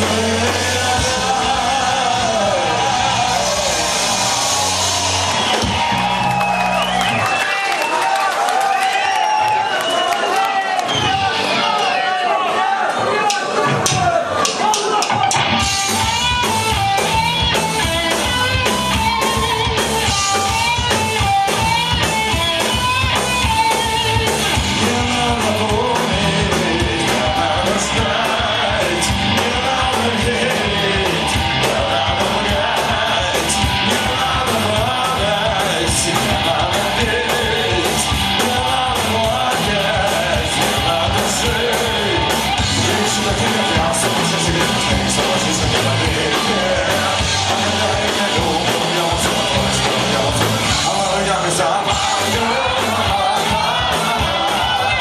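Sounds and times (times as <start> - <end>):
rock band playing: 0.0 - 55.0
wavering melodic guitar lead: 15.2 - 55.0.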